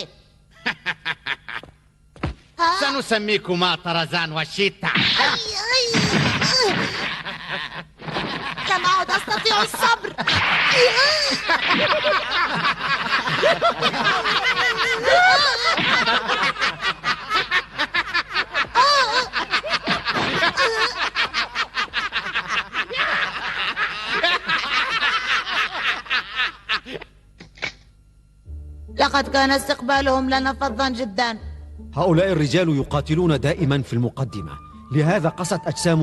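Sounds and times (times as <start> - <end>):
men laughing mockingly: 0.6 - 1.9, 5.2 - 27.2.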